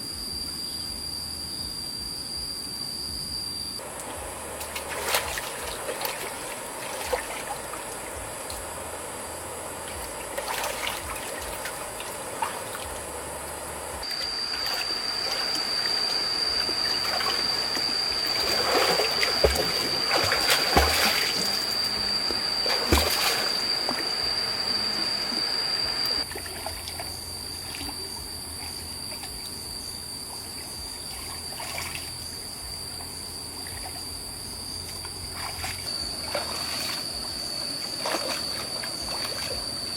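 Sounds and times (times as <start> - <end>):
steady high-pitched tone: 0.0 - 39.9
stream water trickling: 3.8 - 8.8, 9.8 - 13.2, 14.0 - 28.1, 34.7 - 39.9
light knocks and splashes: 18.4 - 21.6.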